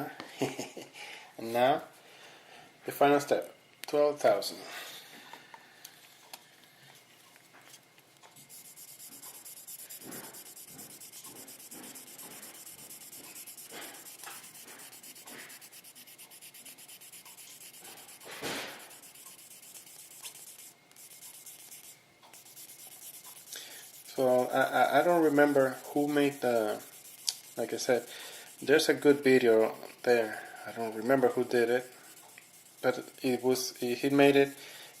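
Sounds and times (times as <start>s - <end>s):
sandpaper rubbing strokes: 8.4s - 35.0s.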